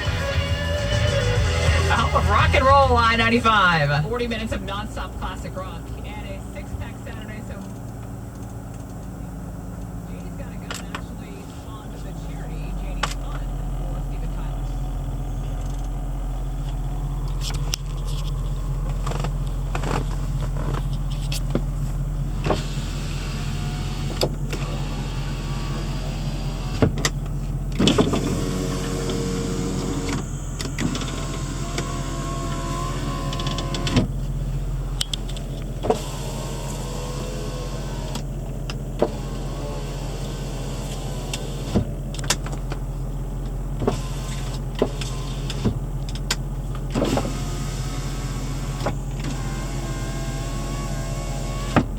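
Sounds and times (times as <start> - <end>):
car engine idling: 0.0 - 51.9
sharp clicks: 7.6 - 9.2.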